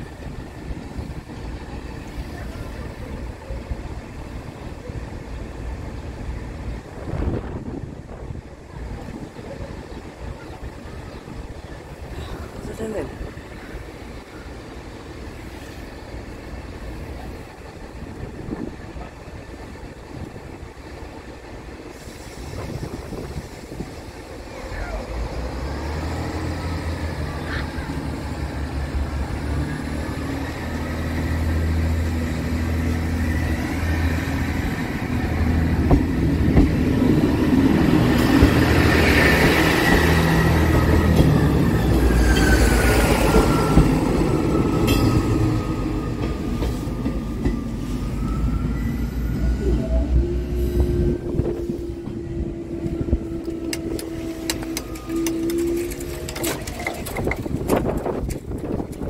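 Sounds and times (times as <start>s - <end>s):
diesel train passing: 0.0s - 59.0s.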